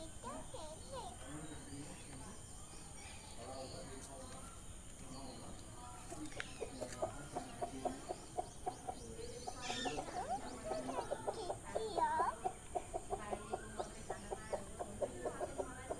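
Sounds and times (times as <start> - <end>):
chickens clucking: 6.1 - 15.9.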